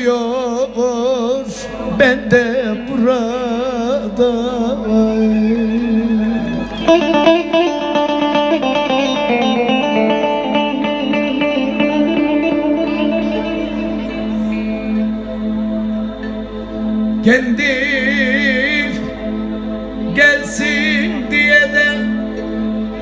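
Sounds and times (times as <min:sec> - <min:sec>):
steady drone: 0:00.0 - 0:23.0
plucked string instrument melody: 0:04.9 - 0:17.1.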